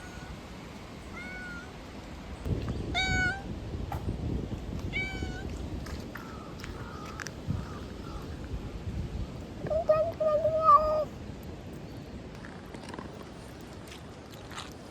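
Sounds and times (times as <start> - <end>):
cat meowing: 1.1 - 1.7, 2.9 - 3.5, 4.9 - 5.5.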